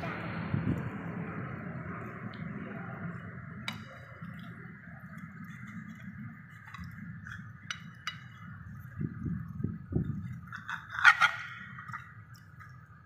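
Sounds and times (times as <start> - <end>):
restaurant background hum: 0.0 - 13.0
dishes clinking: 3.6 - 4.5, 5.1 - 8.8.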